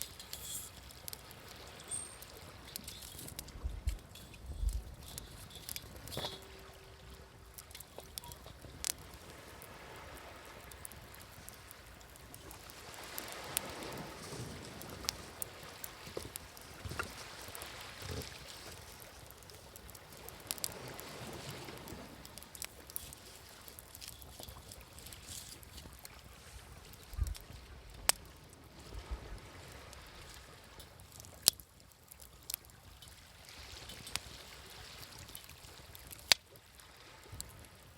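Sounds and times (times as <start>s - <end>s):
sea waves washing in: 0.0s - 25.7s
wood fire crackling: 0.0s - 37.9s.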